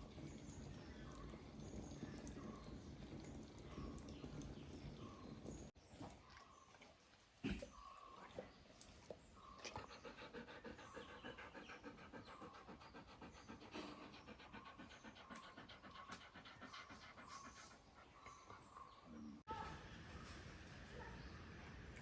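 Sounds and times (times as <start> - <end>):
dog panting: 9.0 - 19.1.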